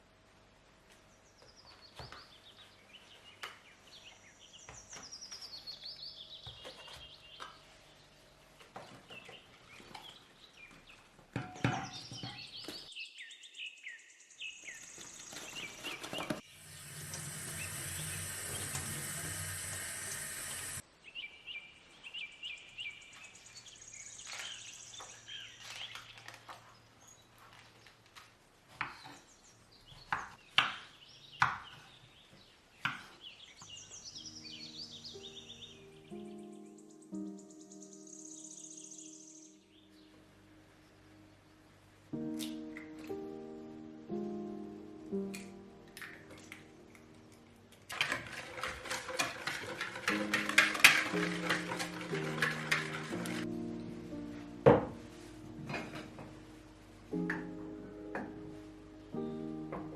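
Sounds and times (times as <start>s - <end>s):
tap running water: 15.8s - 20.8s, 47.8s - 53.5s.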